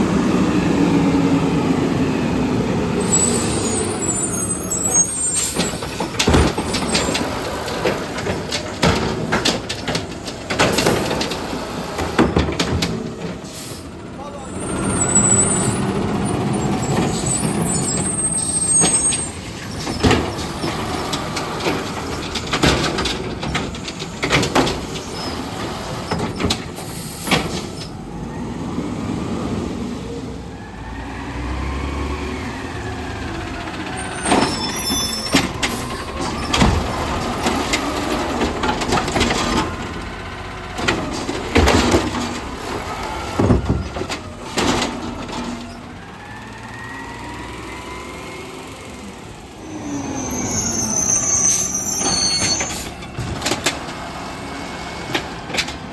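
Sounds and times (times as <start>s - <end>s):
diesel engine revving: 0.0s - 55.9s
trash can banging: 4.6s - 13.4s, 14.8s - 27.8s, 33.9s - 45.6s
air brakes hissing: 13.4s - 21.3s, 26.8s - 28.0s, 49.6s - 53.1s.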